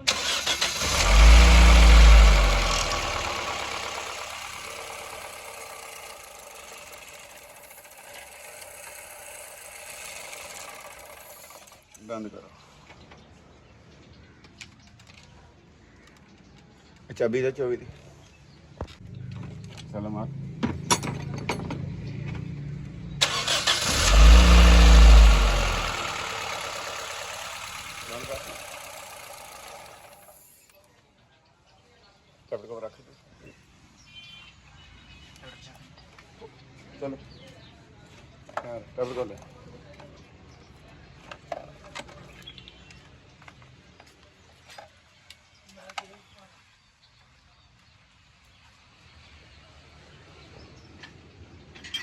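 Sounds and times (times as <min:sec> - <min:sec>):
car engine starting and idling: 0:00.0 - 0:11.8, 0:23.2 - 0:30.6.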